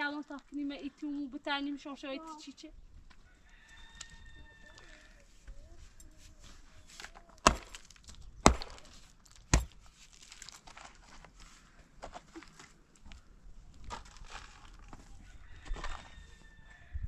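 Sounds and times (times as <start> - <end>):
rustling: 4.8 - 15.1
sharp knocks: 9.5 - 9.8.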